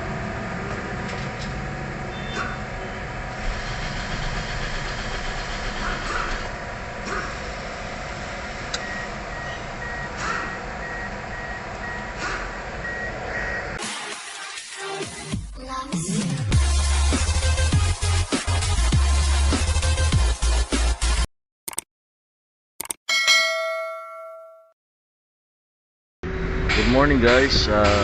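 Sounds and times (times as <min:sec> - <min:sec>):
vehicle engine running: 0:00.0 - 0:13.7
traffic noise: 0:00.0 - 0:13.8.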